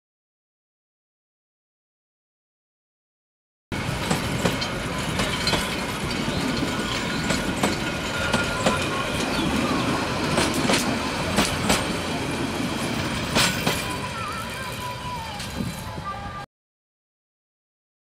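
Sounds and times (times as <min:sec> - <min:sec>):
train wheels rumbling on rail: 0:03.7 - 0:16.4
wheels clicking over rail joints: 0:03.8 - 0:16.0.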